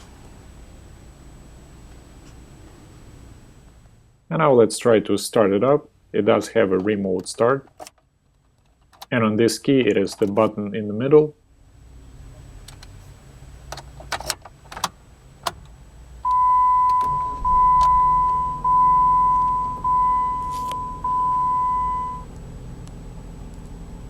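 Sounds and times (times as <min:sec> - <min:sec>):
steady low hum: 0:09.2 - 0:24.0
electronic beeps: 0:16.3 - 0:22.3.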